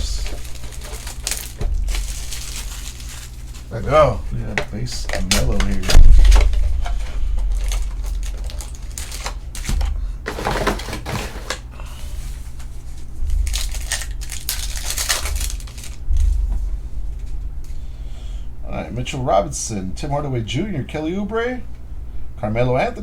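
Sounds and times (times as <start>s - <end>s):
cards rustling and crinkling: 0.0s - 16.6s.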